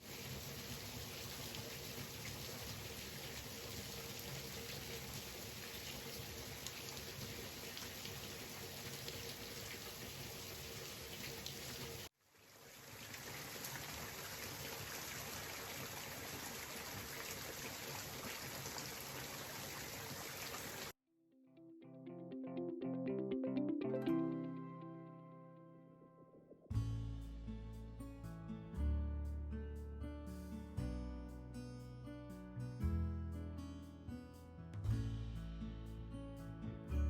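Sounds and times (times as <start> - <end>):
cooking oil sizzling and crackling: 0.0 - 21.0.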